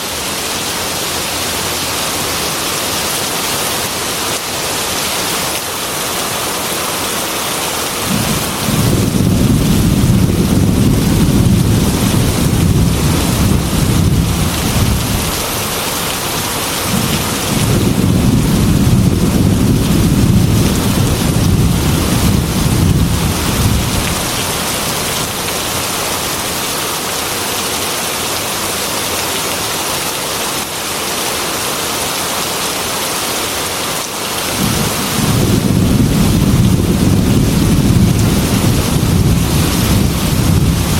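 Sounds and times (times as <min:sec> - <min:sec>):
heavy rain on a window: 0:00.0 - 0:40.9
low rolling thunder: 0:08.1 - 0:25.3, 0:34.5 - 0:40.9.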